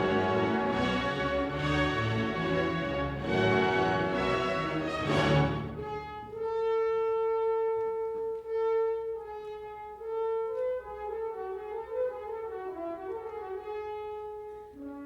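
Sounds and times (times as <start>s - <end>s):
orchestra playing a chord: 0.0s - 6.4s
solo brass line: 0.0s - 7.7s.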